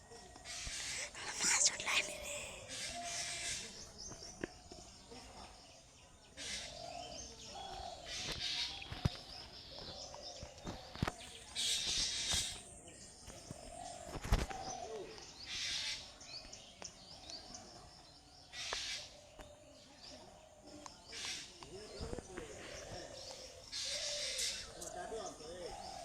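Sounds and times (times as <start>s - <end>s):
birds chirping: 0.2s - 26.0s.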